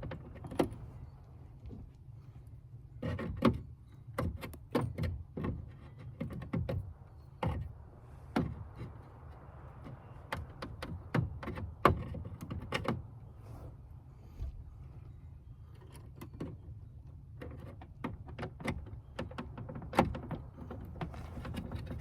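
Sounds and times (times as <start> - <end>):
sharp knocks and clicks: 3.0 - 7.7, 8.3 - 13.0, 15.8 - 22.0.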